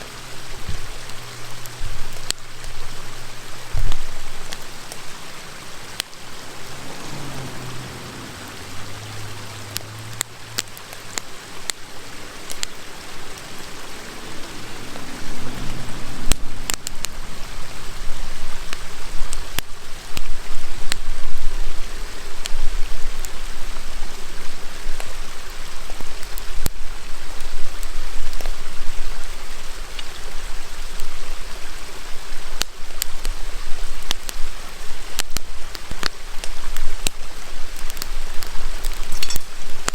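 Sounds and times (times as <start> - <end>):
campfire crackling: 0.0 - 39.9
river water rushing: 0.0 - 39.9
wood popping: 35.2 - 39.9.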